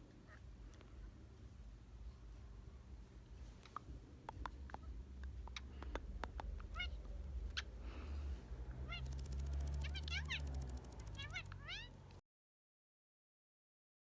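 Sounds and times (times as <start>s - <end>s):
low steady hum: 0.0s - 12.2s
parrot chattering calls: 8.9s - 12.0s
parrot clicking: 9.0s - 12.0s.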